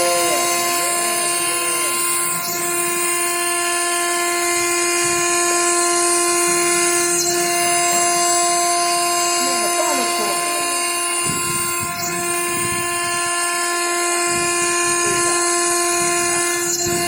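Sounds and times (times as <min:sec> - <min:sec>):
router spindle high-pitched whine: 0:00.0 - 0:17.0.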